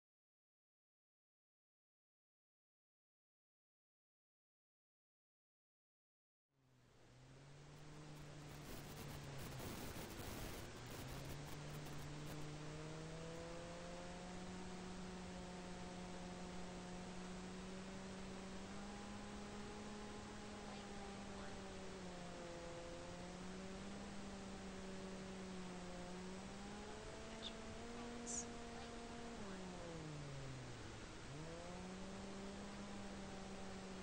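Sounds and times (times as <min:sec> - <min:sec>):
electric motor and propeller humming: 0:06.9 - 0:34.0.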